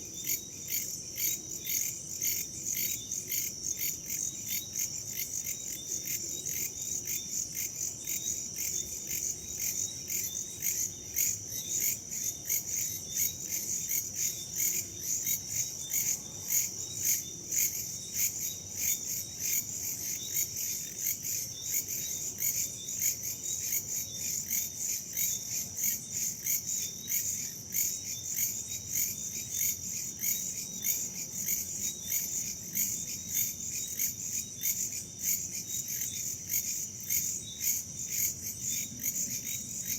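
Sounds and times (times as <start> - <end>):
crickets and insects chirping: 0.0 - 39.9.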